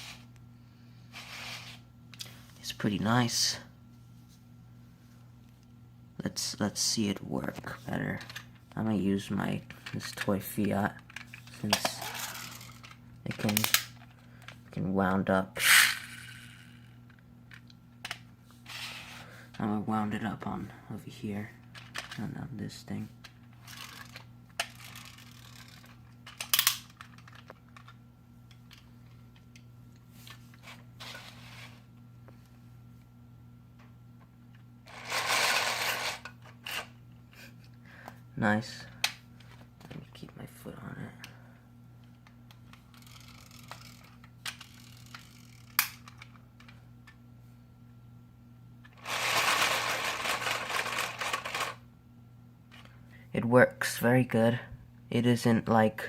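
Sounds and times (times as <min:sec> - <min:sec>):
plastic toy clicking and rattling: 0:23.6 - 0:28.0, 0:42.9 - 0:46.8, 0:49.0 - 0:51.8.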